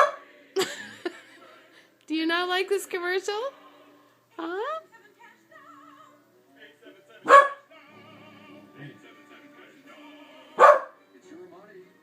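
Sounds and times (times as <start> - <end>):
dog barking: 0.0 - 0.2, 7.3 - 7.7, 10.6 - 11.0
faint operatic singing and music: 0.0 - 12.0.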